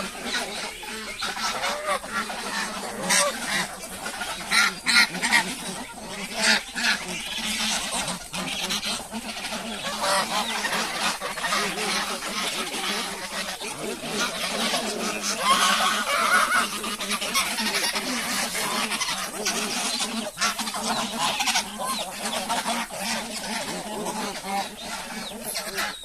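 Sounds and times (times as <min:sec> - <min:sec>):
poultry calling: 0:00.0 - 0:26.0.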